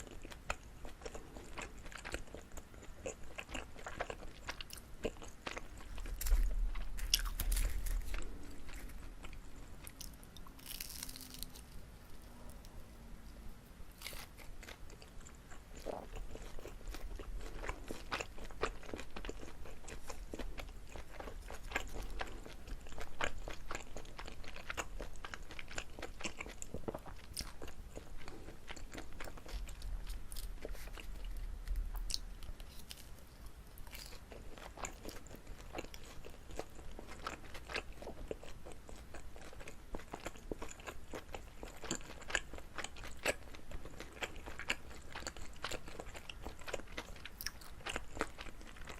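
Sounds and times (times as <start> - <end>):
chewing sticky food: 0.0 - 48.9.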